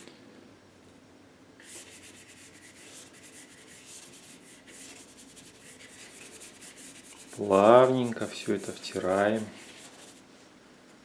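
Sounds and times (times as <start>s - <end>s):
paintbrush scrubbing: 1.6s - 10.3s.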